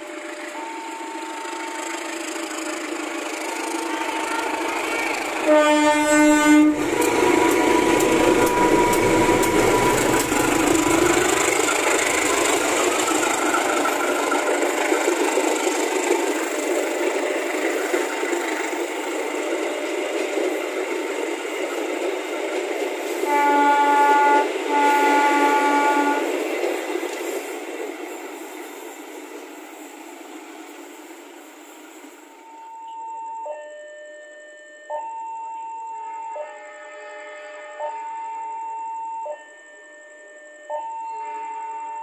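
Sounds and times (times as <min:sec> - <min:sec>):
locomotive engine running: 0:00.0 - 0:29.5
train wheels on rails: 0:00.0 - 0:32.6
train horn blasts: 0:04.1 - 0:11.5, 0:23.2 - 0:26.4.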